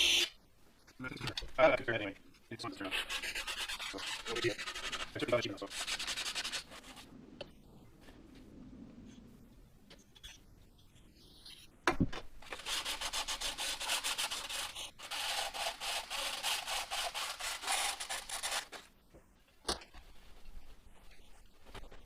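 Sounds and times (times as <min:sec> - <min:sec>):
hand scrubbing strokes: 0:02.8 - 0:07.2, 0:12.6 - 0:18.8.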